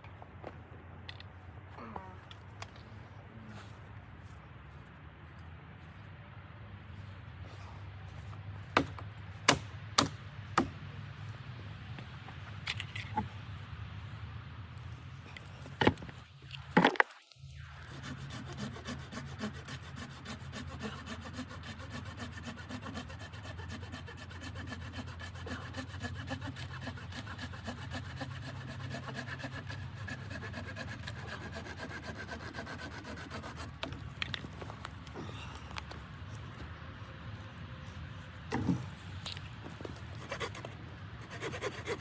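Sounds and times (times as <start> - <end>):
rapid rasping strokes: 17.6 - 34.3, 39.9 - 42.0.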